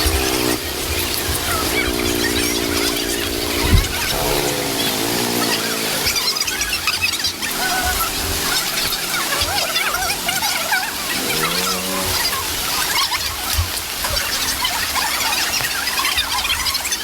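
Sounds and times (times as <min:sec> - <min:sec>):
lower pitched animal call: 0:00.0 - 0:13.4
small animals chirping: 0:00.0 - 0:17.0.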